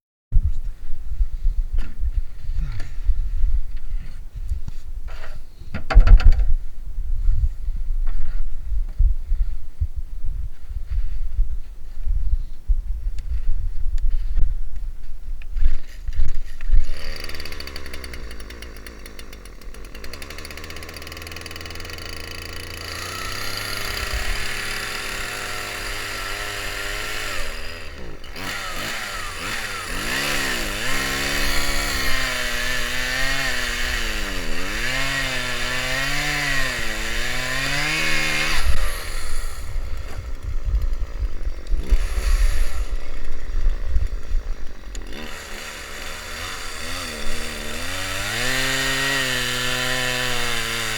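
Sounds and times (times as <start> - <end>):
small engine revving: 15.6 - 50.9.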